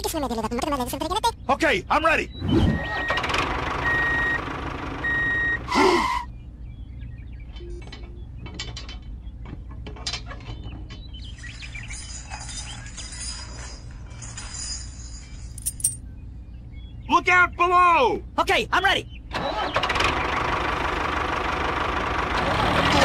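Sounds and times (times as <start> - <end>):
reversing beeps: 2.4 - 3.2, 3.8 - 4.4, 5.0 - 6.2
metal hitch parts clinking: 7.6 - 16.1
tow chain jingling: 11.2 - 16.1.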